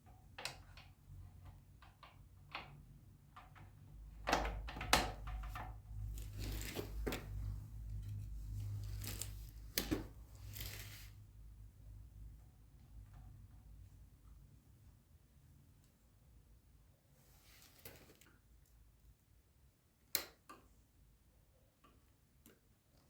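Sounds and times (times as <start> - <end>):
low steady hum: 0.0 - 17.4.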